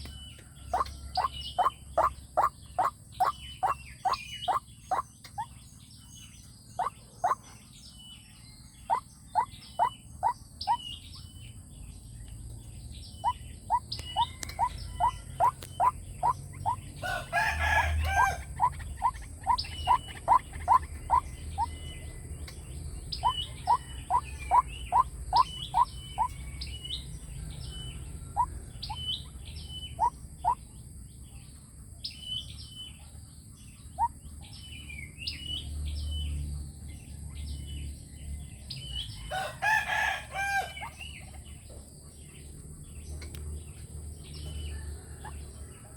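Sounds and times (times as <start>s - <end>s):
bird calling repeated notes: 0.7s - 5.6s, 8.9s - 10.8s, 23.2s - 26.4s.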